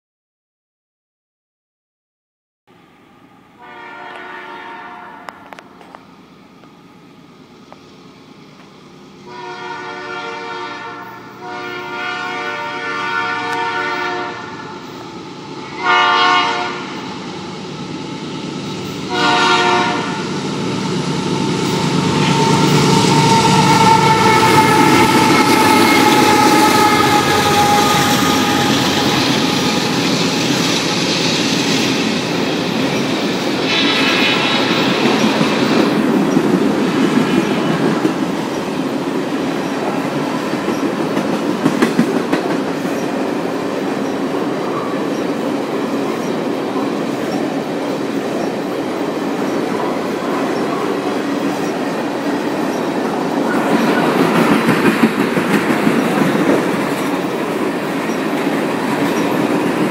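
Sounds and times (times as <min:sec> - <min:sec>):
locomotive horn: 0:03.6 - 0:05.8, 0:09.3 - 0:15.0, 0:15.7 - 0:16.9, 0:19.1 - 0:20.3, 0:21.4 - 0:30.4
train wheels clattering on rails: 0:18.6 - 0:59.9.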